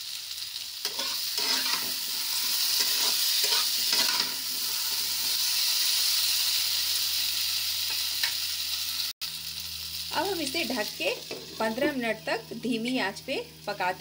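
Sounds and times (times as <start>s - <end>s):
vegetables sizzling in hot oil: 0.0s - 14.0s
spatula scraping a pan: 0.8s - 5.4s.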